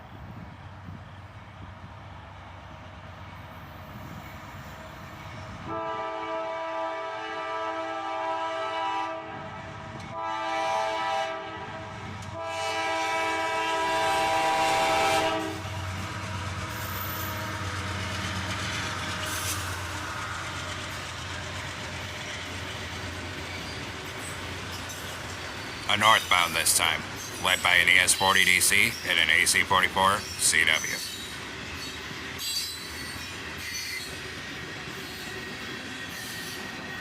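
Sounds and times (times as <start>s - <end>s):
freight train rumbling past: 0.0s - 37.0s
locomotive air horn blasts: 5.7s - 9.5s, 10.1s - 15.8s.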